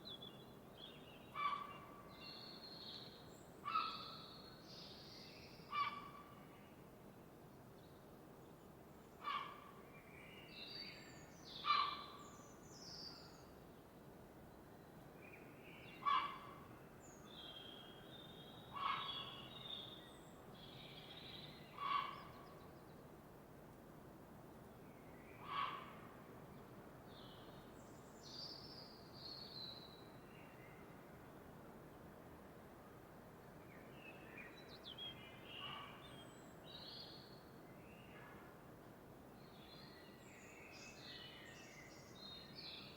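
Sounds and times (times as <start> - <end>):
faint steady hiss: 22.3 - 42.9.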